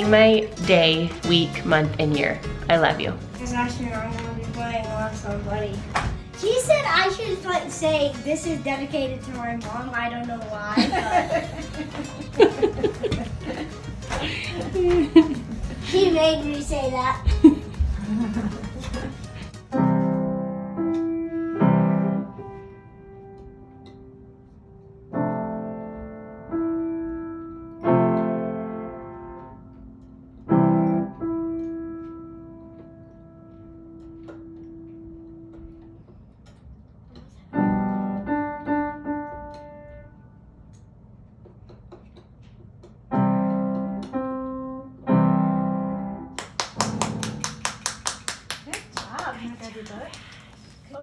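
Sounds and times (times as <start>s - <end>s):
child playing slow piano piece: 19.5s - 36.6s, 37.3s - 40.8s, 43.1s - 47.6s.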